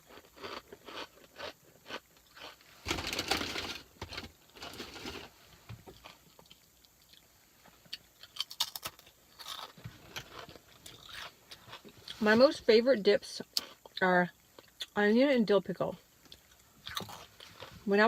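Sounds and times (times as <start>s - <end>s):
crunching potato chips: 0.0s - 5.3s, 7.9s - 12.2s, 16.4s - 17.7s.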